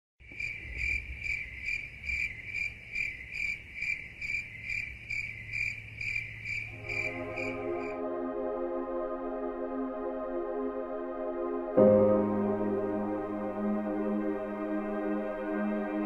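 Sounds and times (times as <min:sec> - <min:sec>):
cricket chirping: 0:00.2 - 0:08.0
ambient synthesizer music: 0:06.7 - 0:16.0.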